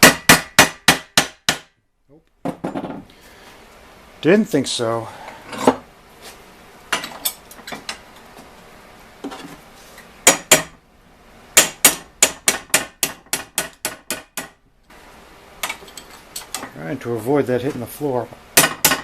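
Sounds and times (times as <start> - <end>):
hammer striking metal: 0.0 - 1.8, 10.2 - 10.8, 11.6 - 14.6, 18.6 - 19.0.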